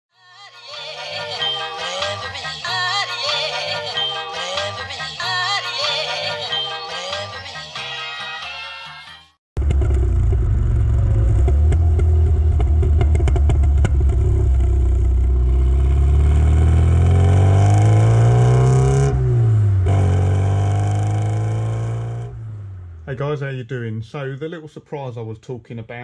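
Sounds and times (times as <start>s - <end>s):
car engine and exhaust revving: 9.6s - 23.2s.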